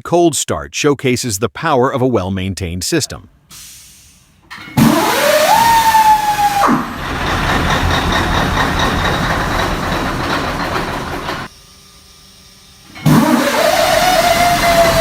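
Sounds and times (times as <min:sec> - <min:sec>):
engine whine: 0:04.5 - 0:11.5, 0:12.8 - 0:15.0
diesel truck engine running: 0:04.8 - 0:11.5, 0:13.1 - 0:15.0.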